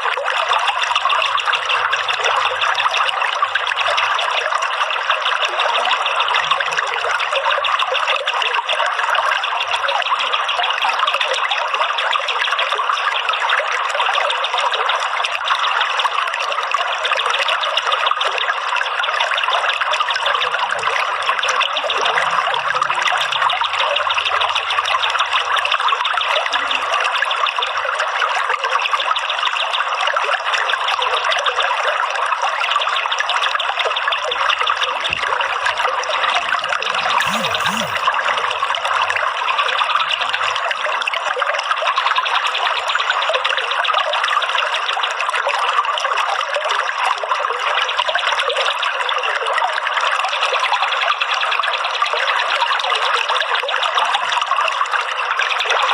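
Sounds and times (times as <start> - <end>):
running water trickling: 0.0 - 47.8.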